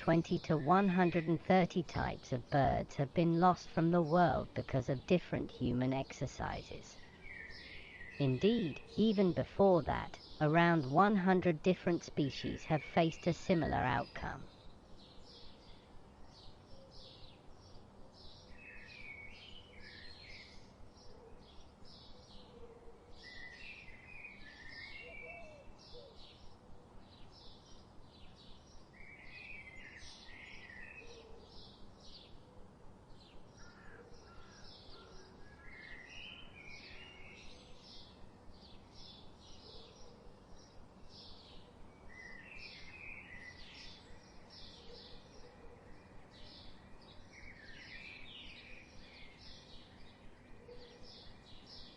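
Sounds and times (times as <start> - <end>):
birds chirping: 0.0 - 22.6.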